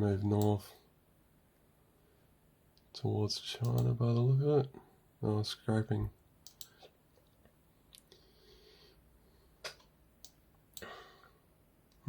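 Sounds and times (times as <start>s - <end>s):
computer mouse clicks: 6.4s - 6.9s, 9.7s - 10.9s.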